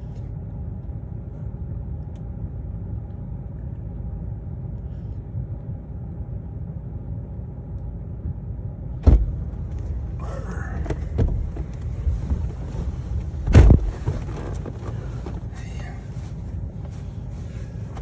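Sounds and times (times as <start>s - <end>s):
muffled vehicle rumble: 0.0s - 18.0s
loud thump: 9.0s - 9.6s, 10.9s - 11.7s, 13.4s - 14.3s.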